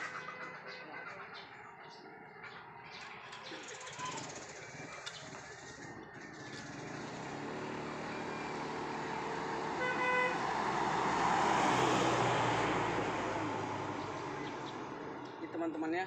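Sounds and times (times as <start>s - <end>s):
outboard motor drone: 5.6s - 15.2s.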